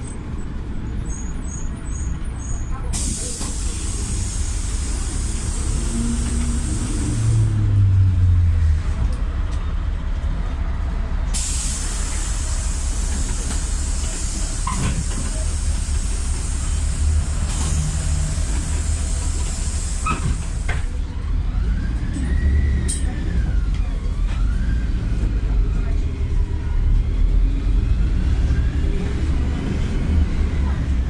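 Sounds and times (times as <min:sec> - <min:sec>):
bus engine rumbling: 0:00.0 - 0:31.0
wailing siren: 0:21.4 - 0:25.7.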